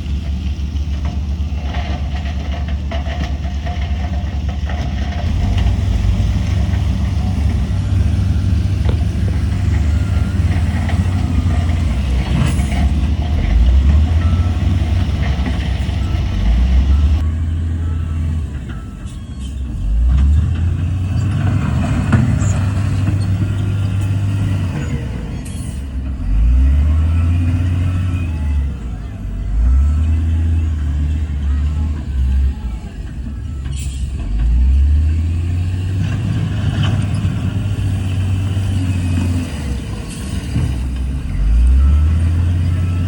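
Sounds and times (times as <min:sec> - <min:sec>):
heavy diesel engine droning: 0:00.0 - 0:43.0.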